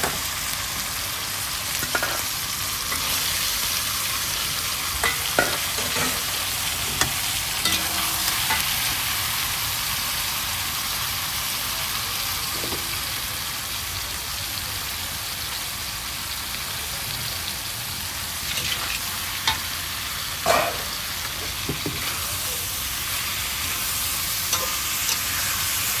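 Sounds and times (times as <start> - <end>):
vegetables sizzling in hot oil: 0.0 - 26.0.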